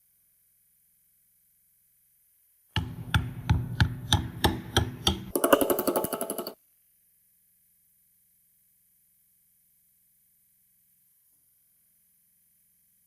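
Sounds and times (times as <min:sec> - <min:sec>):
sharp knocks: 0:02.8 - 0:06.6
rapid ticks: 0:05.0 - 0:06.6.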